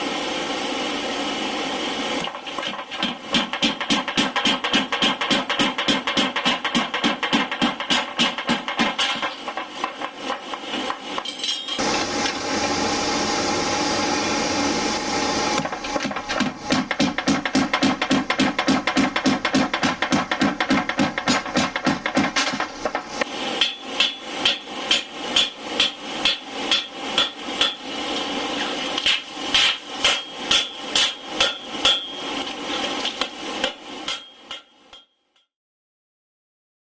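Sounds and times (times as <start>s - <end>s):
hammer blows on hot steel: 15.6s - 28.3s, 29.0s - 35.5s.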